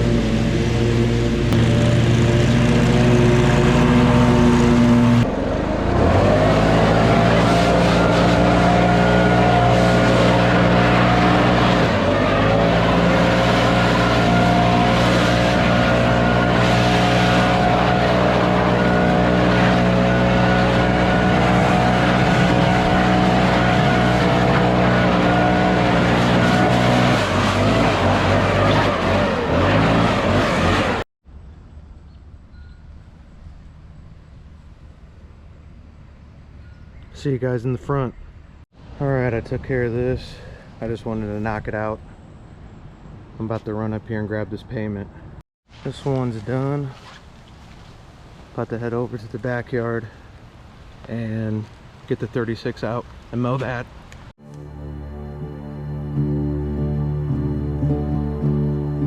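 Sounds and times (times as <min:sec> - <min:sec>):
lawn mower engine running: 0:00.0 - 0:31.0.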